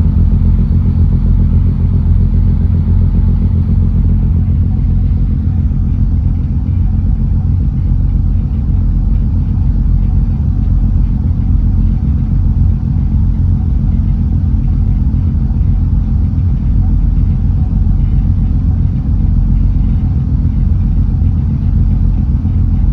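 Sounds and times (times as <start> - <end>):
engine low drone: 0.0 - 22.9.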